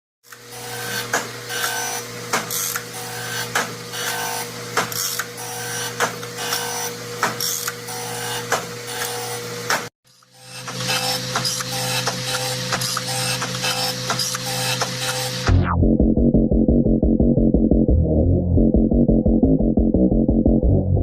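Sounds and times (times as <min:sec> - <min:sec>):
machine humming: 0:00.3 - 0:17.5
short whirring blips: 0:02.6 - 0:15.6.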